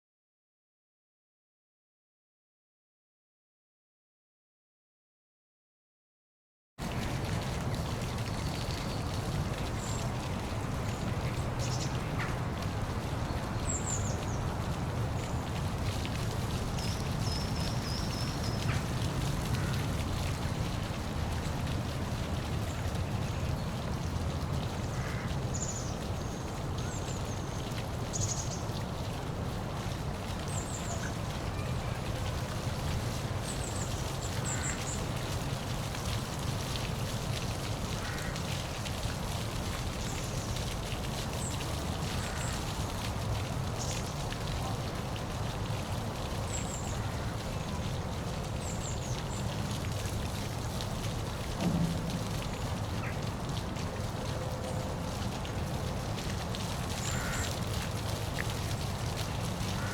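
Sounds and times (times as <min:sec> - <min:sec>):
waterfall rushing: 0:50.9 - 0:57.3.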